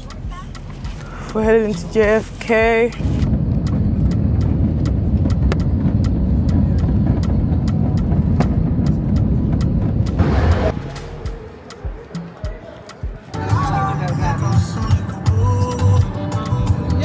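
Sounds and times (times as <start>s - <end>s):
airplane rumbling on ground: 0.7s - 12.5s.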